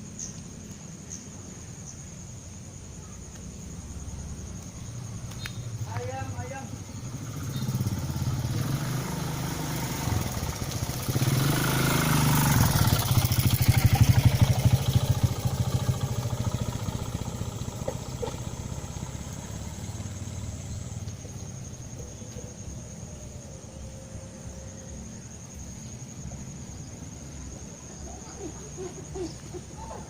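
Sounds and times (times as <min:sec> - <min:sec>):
motorcycle passing by: 0:03.7 - 0:30.0.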